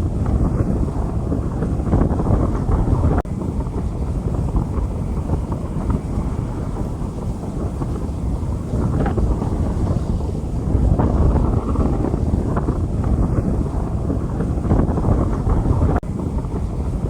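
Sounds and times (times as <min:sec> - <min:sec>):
rain falling on street: 0:00.0 - 0:17.0
wind buffeting microphone: 0:00.0 - 0:17.0.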